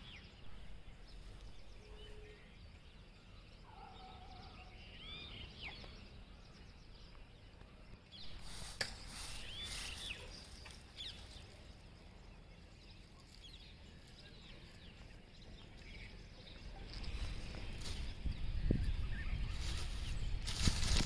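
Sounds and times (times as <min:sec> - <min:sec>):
birds chirping: 0:00.0 - 0:21.0
outdoor background noise: 0:00.0 - 0:21.0.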